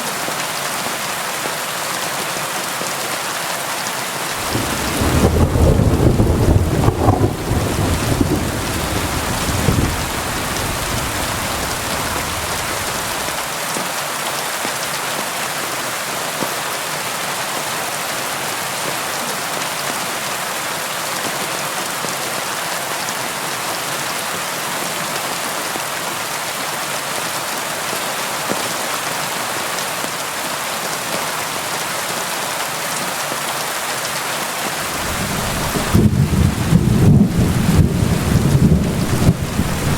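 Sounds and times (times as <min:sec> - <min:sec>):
steady rain hiss: 0:03.7 - 0:14.4, 0:27.7 - 0:39.9
thunder rumble: 0:04.4 - 0:13.4, 0:34.8 - 0:39.9.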